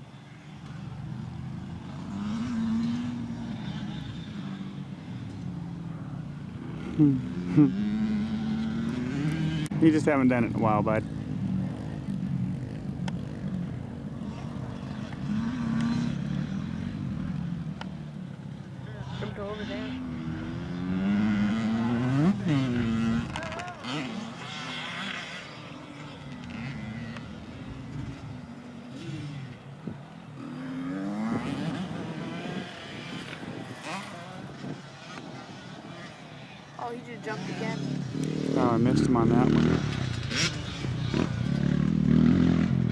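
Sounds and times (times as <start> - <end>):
dirt bike engines running: 0.0 - 42.9.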